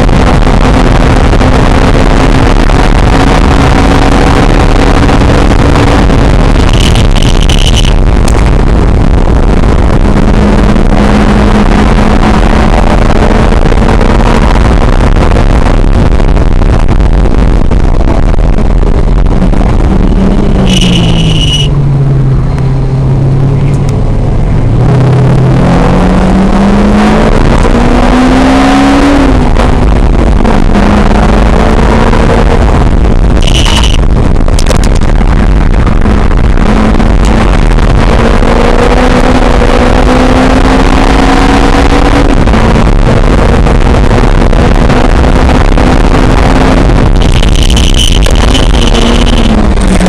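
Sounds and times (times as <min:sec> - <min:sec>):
heavy wind noise: 0:00.0 - 0:50.0
sports car engine: 0:00.0 - 0:50.0
high beep: 0:06.6 - 0:08.0, 0:20.5 - 0:21.7, 0:33.4 - 0:34.0.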